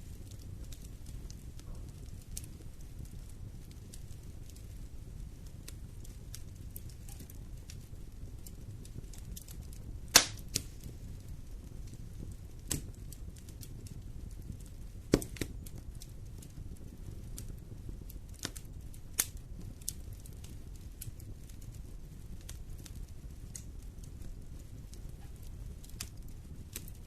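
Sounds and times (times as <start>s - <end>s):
wood fire crackling and popping: 0.0s - 27.0s.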